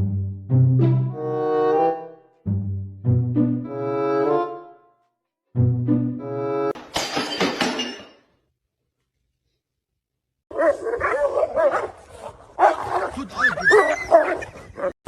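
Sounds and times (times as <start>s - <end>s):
dog whining and yipping: 13.4s - 14.9s.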